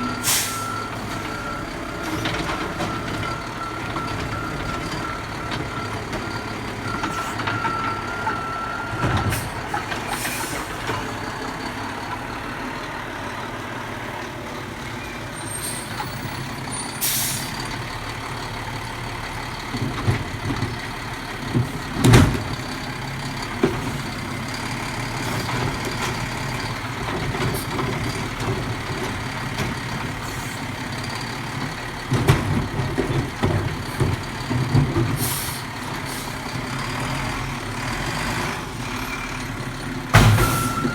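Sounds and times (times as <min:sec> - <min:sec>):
garbage truck running: 0:00.0 - 0:40.9
sharp loud bang: 0:40.2 - 0:40.8.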